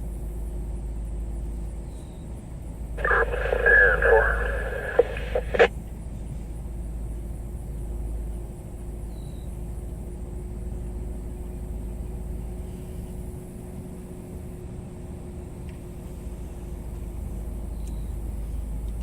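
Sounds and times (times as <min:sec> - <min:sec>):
faint steady hum: 0:03.0 - 0:05.7.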